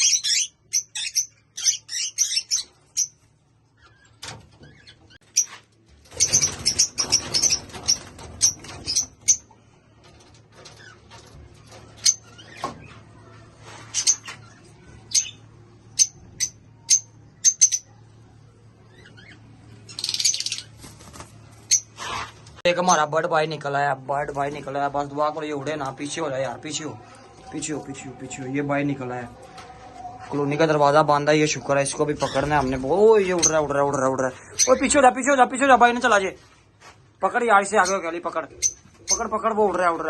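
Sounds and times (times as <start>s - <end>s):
parrots chirping: 0.0s - 9.5s, 14.0s - 18.0s, 18.8s - 20.8s, 21.6s - 22.3s, 37.8s - 39.4s
rustling in cages: 2.0s - 15.6s, 18.9s - 40.0s.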